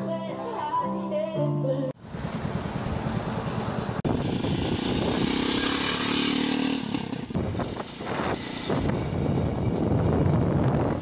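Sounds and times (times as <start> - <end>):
motorbike engine running: 2.0 - 11.0
wind rushing over microphone: 4.0 - 11.0.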